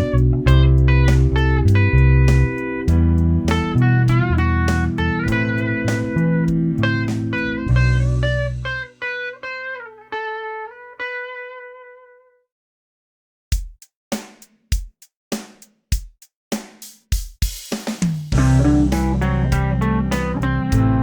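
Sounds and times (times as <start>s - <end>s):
backing progression with bass: 0.0s - 9.1s, 18.1s - 21.0s
lead guitar with string bends: 0.0s - 12.3s, 18.4s - 21.0s.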